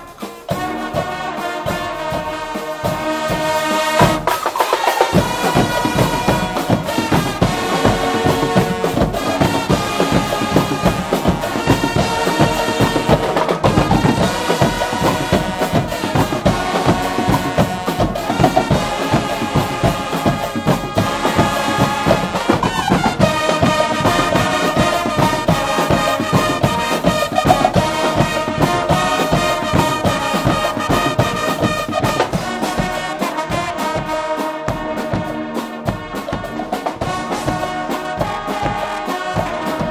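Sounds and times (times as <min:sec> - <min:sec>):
brass band playing: 0:00.0 - 0:39.9
driving drum beat: 0:00.0 - 0:39.9.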